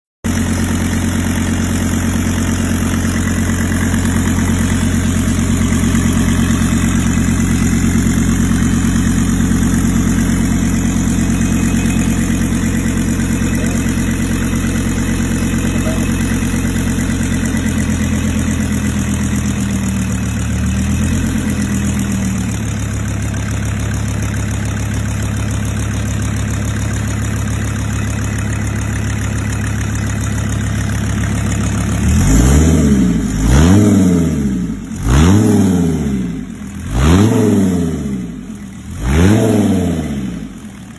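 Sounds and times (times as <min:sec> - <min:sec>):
car engine idling: 0:00.2 - 0:40.9.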